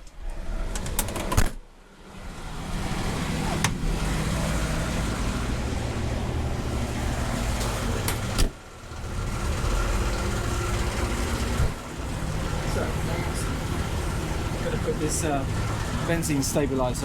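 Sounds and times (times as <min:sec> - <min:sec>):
car engine idling: 0:01.8 - 0:17.0.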